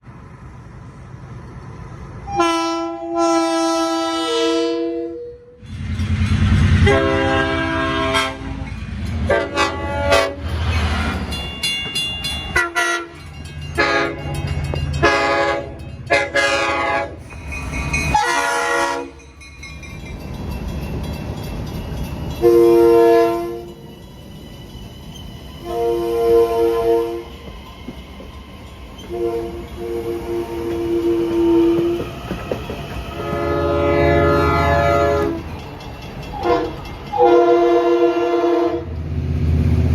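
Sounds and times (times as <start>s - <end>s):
moving train rumble: 0.0s - 39.9s
train horn blasts: 2.2s - 5.6s, 6.7s - 10.5s, 12.5s - 17.4s, 18.1s - 19.2s, 22.4s - 23.8s, 25.6s - 27.3s, 29.0s - 32.1s, 33.2s - 35.4s, 36.3s - 39.0s.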